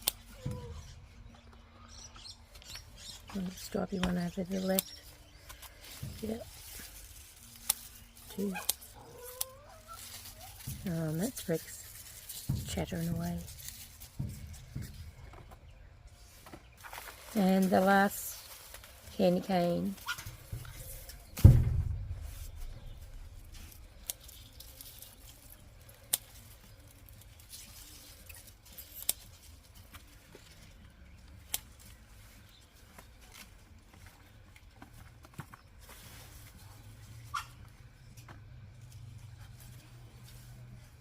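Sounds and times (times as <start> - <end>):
loud thump: 21.4 - 23.5.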